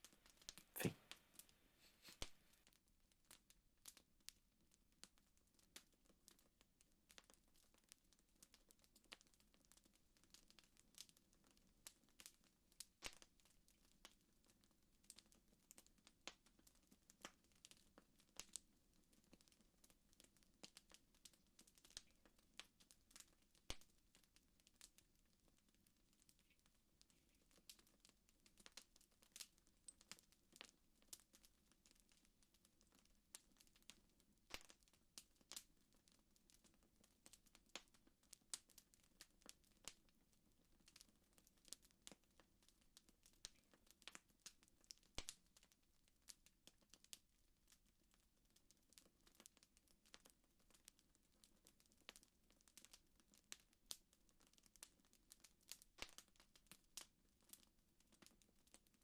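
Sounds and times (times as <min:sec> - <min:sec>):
campfire crackling: 0:07.1 - 0:18.6, 0:19.2 - 0:40.0, 0:43.2 - 0:45.7, 0:55.6 - 0:56.7.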